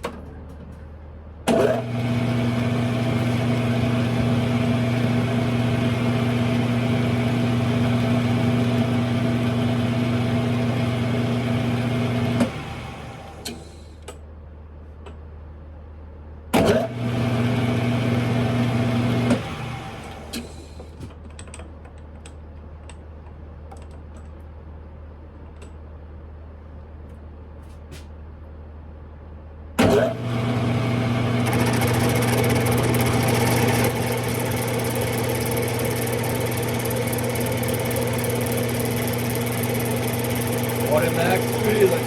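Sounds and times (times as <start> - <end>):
lathe motor humming: 1.5 - 13.6, 16.9 - 20.4, 29.8 - 42.0.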